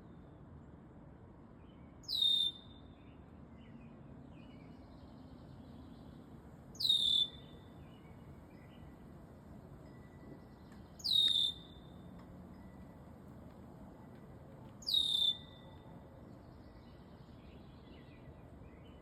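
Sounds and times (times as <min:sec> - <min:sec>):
faint bird chirps: 0:01.6 - 0:03.8, 0:06.8 - 0:09.1, 0:09.9 - 0:13.0, 0:14.8 - 0:19.0.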